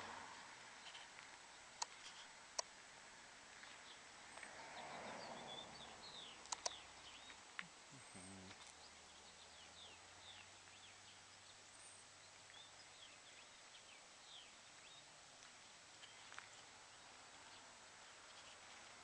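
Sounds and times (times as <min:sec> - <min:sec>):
small birds chirping: 0:00.0 - 0:19.0
sharp clicks: 0:01.8 - 0:02.7, 0:06.4 - 0:06.8.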